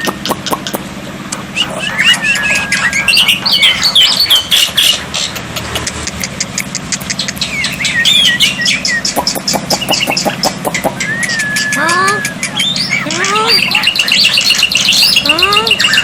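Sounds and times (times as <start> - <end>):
bird clicking chatter: 0.0 - 16.0
steady low hum: 0.0 - 16.0
bird whistled calls: 1.5 - 5.0, 7.2 - 16.0.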